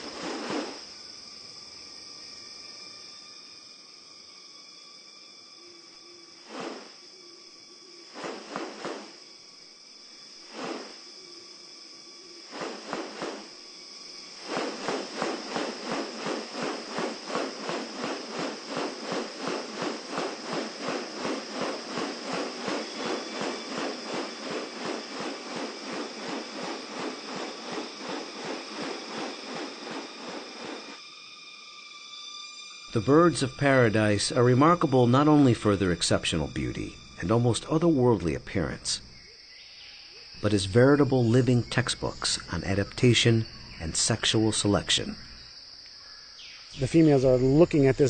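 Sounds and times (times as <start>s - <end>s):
insects droning: 0.0s - 48.0s
pulsing insect buzz: 0.0s - 48.0s.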